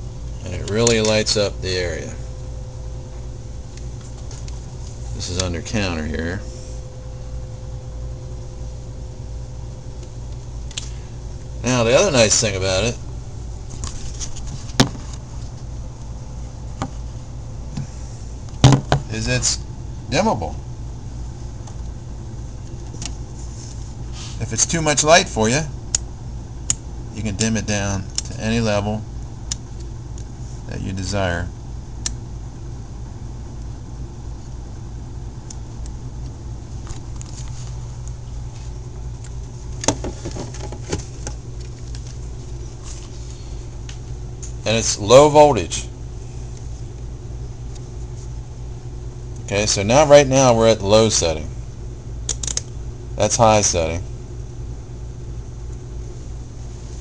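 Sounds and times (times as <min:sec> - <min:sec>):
steady low hum: 0:00.0 - 0:57.0
sharp clicks: 0:52.3 - 0:52.8.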